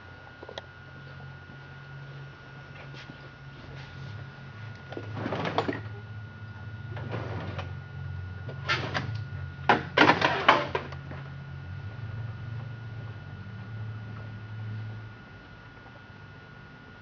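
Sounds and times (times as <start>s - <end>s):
low electrical hum: 0.0s - 17.0s
clattering objects on workbench: 9.7s - 11.0s.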